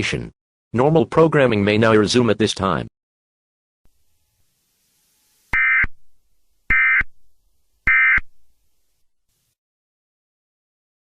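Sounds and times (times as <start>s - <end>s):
digital data tone bursts: 4.6s - 6.1s, 6.7s - 7.2s, 7.8s - 8.3s.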